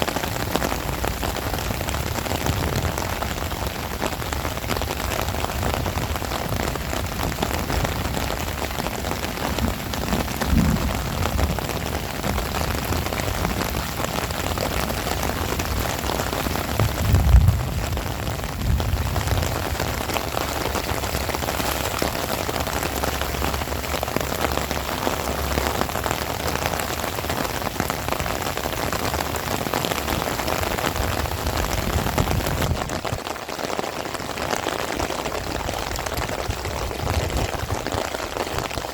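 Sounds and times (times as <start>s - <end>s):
heavy rain: 0.0s - 38.9s
low rumbles: 7.6s - 14.5s, 16.6s - 24.0s.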